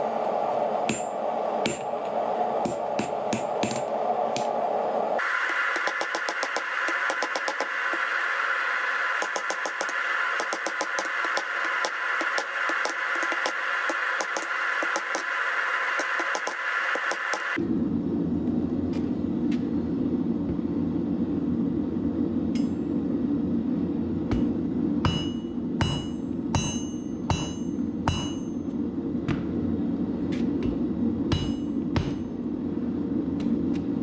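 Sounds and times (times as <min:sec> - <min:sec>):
hammer striking steel on anvil: 0:00.9 - 0:01.9, 0:02.6 - 0:04.6, 0:05.2 - 0:08.3, 0:09.1 - 0:17.6, 0:22.6 - 0:22.9, 0:24.3 - 0:28.7, 0:30.6 - 0:32.4.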